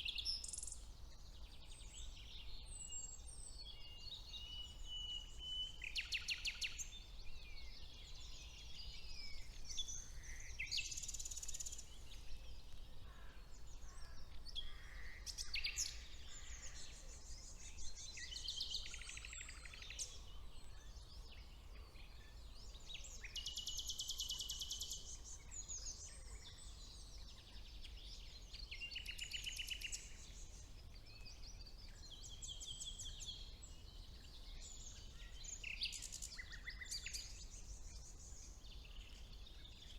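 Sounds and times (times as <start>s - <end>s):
nightingale trills: 0.0s - 21.3s
songbirds singing: 0.0s - 39.9s.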